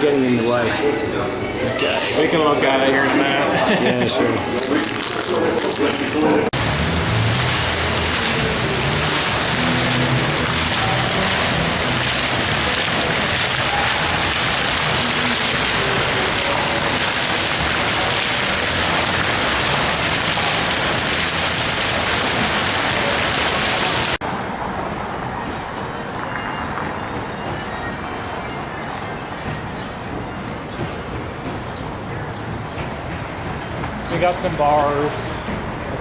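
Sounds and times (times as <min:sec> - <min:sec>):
faint voices: 0:00.0 - 0:36.0
water fountain splashing: 0:03.6 - 0:24.2.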